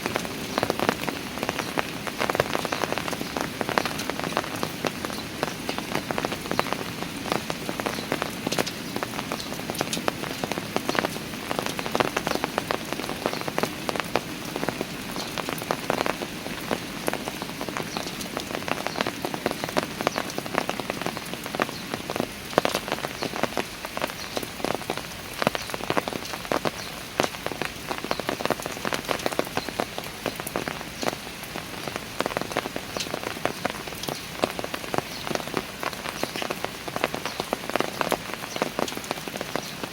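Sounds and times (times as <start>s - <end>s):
drips splashing on stone: 0.0s - 39.9s
rain hissing: 0.0s - 39.9s.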